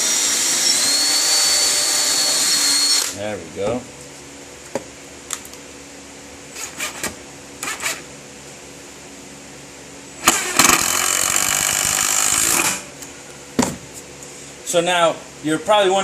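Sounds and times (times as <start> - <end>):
electric power drill running: 0.0 - 3.2, 10.2 - 12.9.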